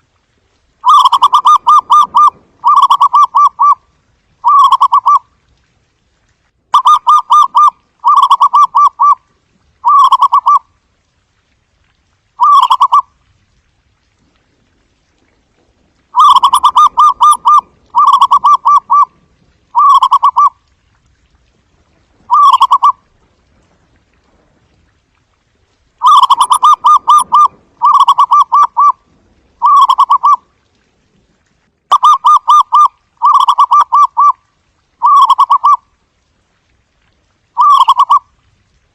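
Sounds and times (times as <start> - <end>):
dove cooing: 0.8 - 3.8, 4.4 - 5.2, 9.8 - 10.6, 16.2 - 19.1, 19.8 - 20.5, 22.3 - 23.0, 26.0 - 29.0, 29.6 - 30.4, 31.9 - 34.4, 35.0 - 35.8, 37.6 - 38.2.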